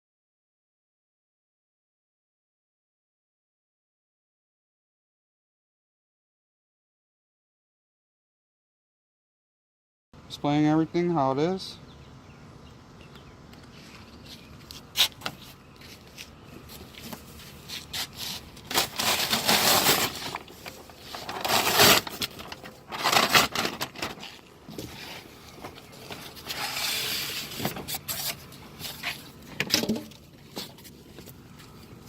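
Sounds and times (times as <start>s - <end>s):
scraping and rustling: 13.6s - 32.0s.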